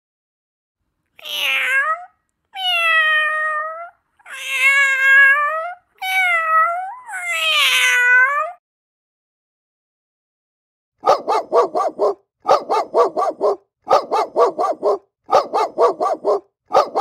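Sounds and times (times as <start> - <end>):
cat meowing: 1.2 - 8.6.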